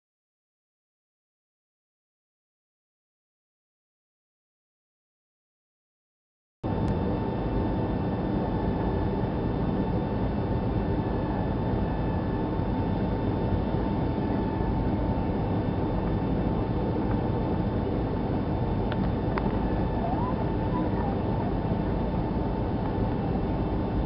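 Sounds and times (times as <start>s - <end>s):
jet engine rumble and whine: 6.6s - 24.0s.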